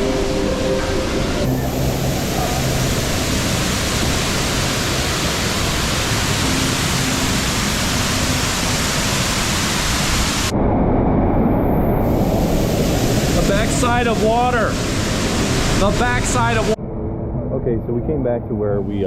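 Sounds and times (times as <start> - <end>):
waterfall pouring: 0.0 - 10.5, 12.1 - 16.8.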